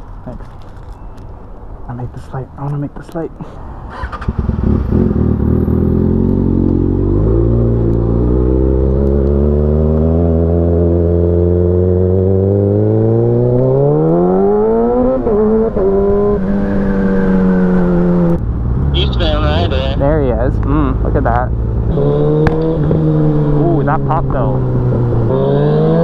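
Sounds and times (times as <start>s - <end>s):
motorcycle engine accelerating: 3.9s - 19.1s, 20.8s - 26.0s.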